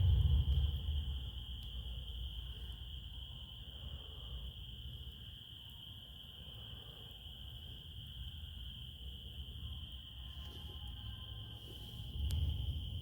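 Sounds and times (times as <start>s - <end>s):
low rumble: 0.0s - 4.4s
crickets trilling: 0.0s - 13.0s.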